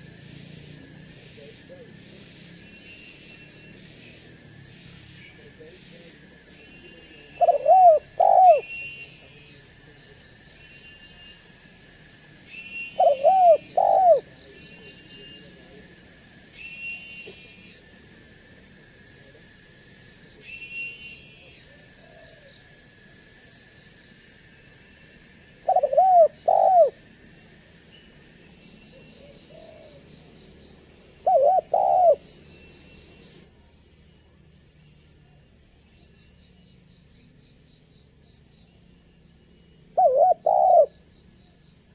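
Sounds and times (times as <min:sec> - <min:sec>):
dove cooing: 0:07.0 - 0:08.7, 0:13.0 - 0:14.3, 0:25.6 - 0:27.0, 0:29.2 - 0:30.0, 0:31.2 - 0:32.3, 0:40.0 - 0:41.0
small bird chirping: 0:12.5 - 0:15.5, 0:27.9 - 0:33.4.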